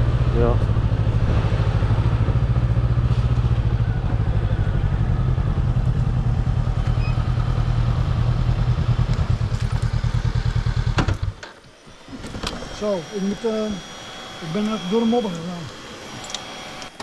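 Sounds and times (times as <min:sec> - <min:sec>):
motorcycle engine running: 0:00.0 - 0:11.5.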